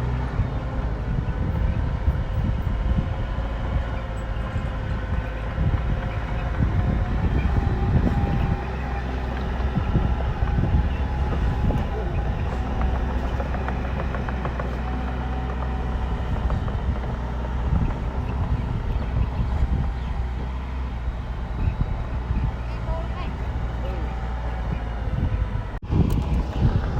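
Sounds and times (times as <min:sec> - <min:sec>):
diesel engine under load: 0:00.0 - 0:26.9
knocks and clanks: 0:03.6 - 0:21.8.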